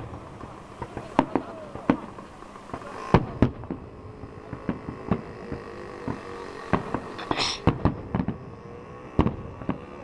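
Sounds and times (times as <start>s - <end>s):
fireworks bangs: 0.0s - 10.0s
short hiss: 7.1s - 7.7s.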